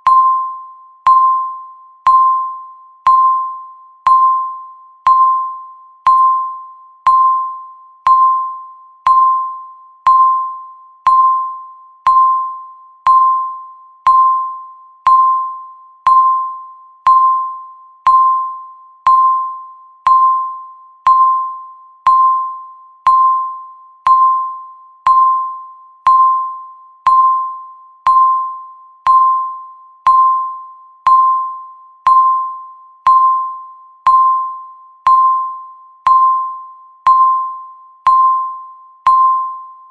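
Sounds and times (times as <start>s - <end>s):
timer bell-like dings: 0.0s - 39.9s.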